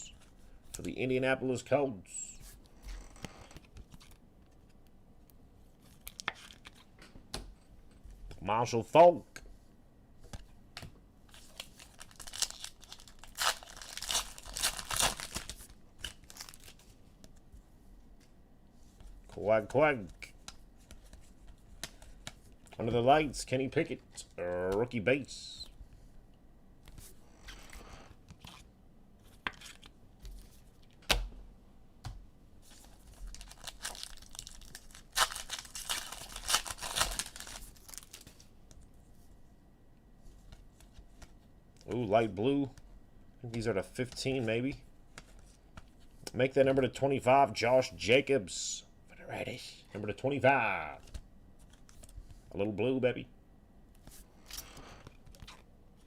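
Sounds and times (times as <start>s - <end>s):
foil wrapper crinkling and tearing: 11.3s - 16.8s, 32.7s - 38.4s.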